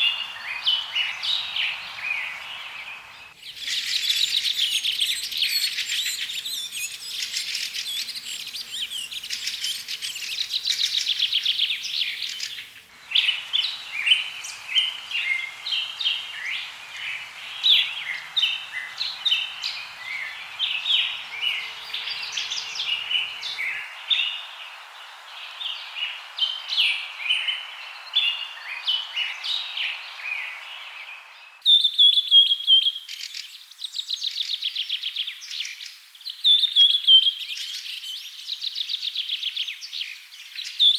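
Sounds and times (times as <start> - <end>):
steady hiss: 0.0 - 31.6
birds chirping and singing: 0.0 - 31.7.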